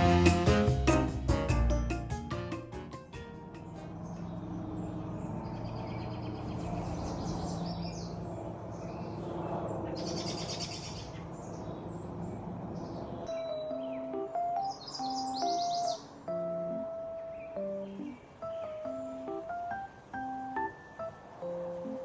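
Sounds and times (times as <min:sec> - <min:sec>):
birds chirping and trilling: 0:03.4 - 0:20.6.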